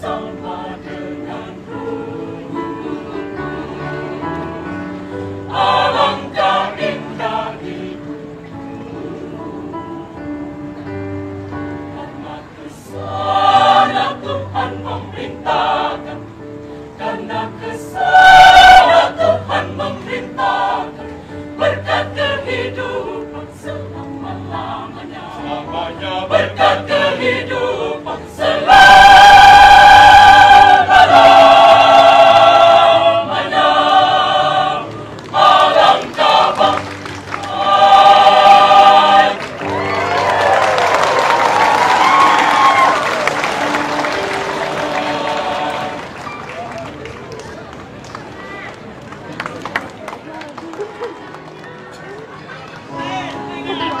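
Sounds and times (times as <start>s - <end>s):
choir singing in harmony: 0.0s - 46.5s
applause: 36.0s - 37.6s, 39.4s - 53.3s.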